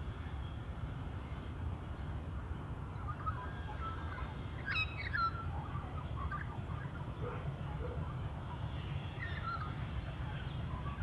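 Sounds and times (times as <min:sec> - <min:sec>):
bird calling: 0:02.9 - 0:11.0.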